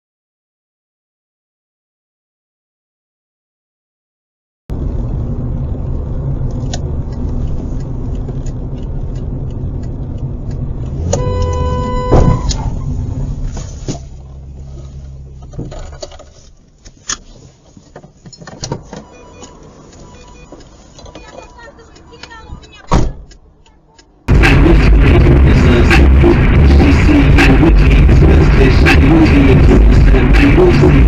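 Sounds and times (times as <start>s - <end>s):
car engine and road rumble: 4.7s - 31.0s
car horn: 11.0s - 12.9s, 19.0s - 20.4s
clicks: 15.4s - 24.2s.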